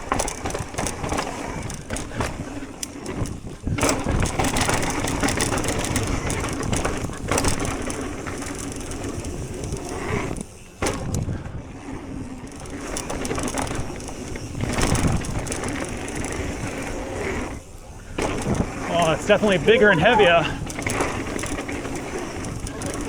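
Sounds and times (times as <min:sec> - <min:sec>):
bike rattling over bumps: 0:00.0 - 0:23.0
tyres crunching over dirt: 0:18.2 - 0:23.0.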